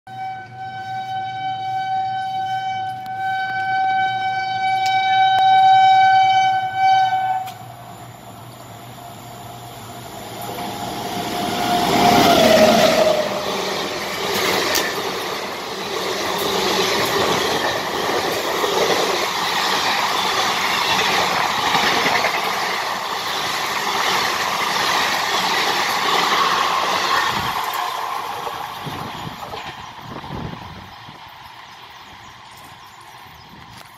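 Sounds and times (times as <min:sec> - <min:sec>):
train horn blast: 0:00.1 - 0:07.7
train coaches rushing past: 0:07.1 - 0:33.9.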